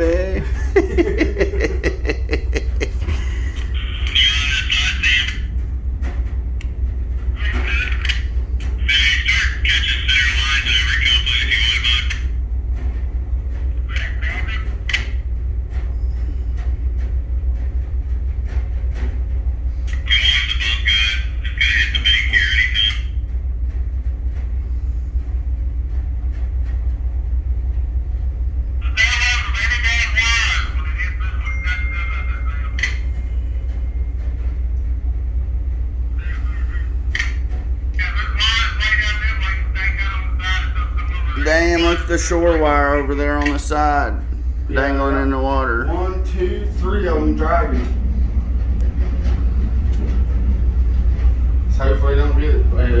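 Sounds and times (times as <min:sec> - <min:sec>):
faint voices: 0:00.0 - 0:05.5, 0:07.3 - 0:12.3, 0:36.0 - 0:53.0
boat engine rumbling: 0:00.0 - 0:53.0.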